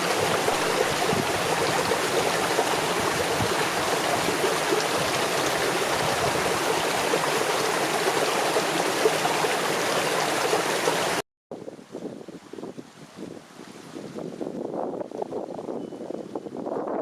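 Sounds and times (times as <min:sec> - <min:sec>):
mountain stream rushing: 0:00.0 - 0:11.2
uneven wind-like noise: 0:00.0 - 0:17.0.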